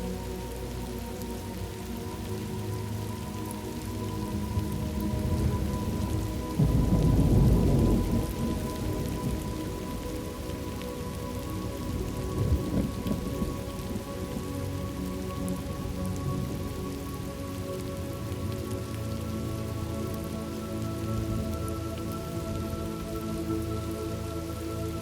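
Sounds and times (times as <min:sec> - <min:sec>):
soft background music: 0:00.0 - 0:25.0
steady rain: 0:00.0 - 0:25.0
thunder rumbling: 0:04.6 - 0:10.5, 0:11.8 - 0:14.0.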